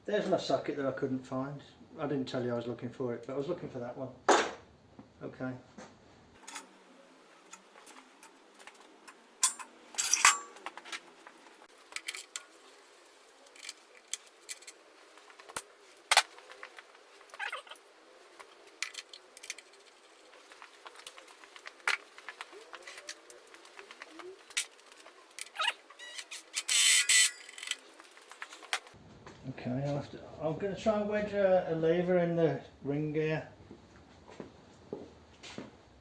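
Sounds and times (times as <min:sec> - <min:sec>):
metal parts clattering: 0:07.8 - 0:11.1, 0:11.8 - 0:12.6, 0:13.5 - 0:17.8, 0:18.4 - 0:28.9.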